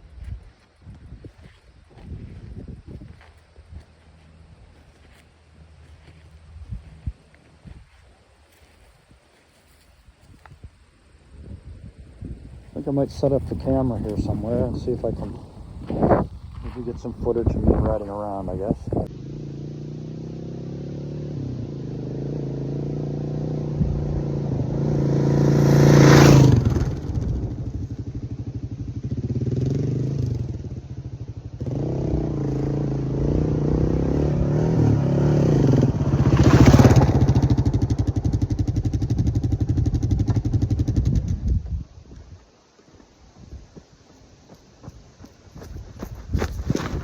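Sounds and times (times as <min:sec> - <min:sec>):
motorcycle engine passing by: 0:12.8 - 0:41.6.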